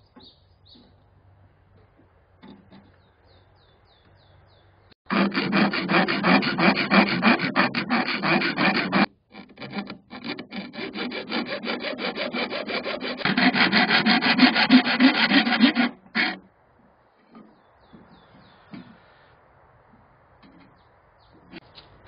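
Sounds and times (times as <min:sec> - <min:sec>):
hand file rasping on steel: 0:05.1 - 0:16.4.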